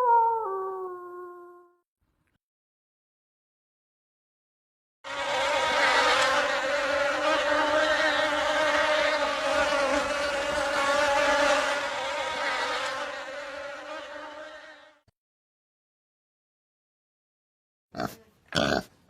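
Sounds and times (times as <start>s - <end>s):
insect buzzing: 5.0s - 15.0s.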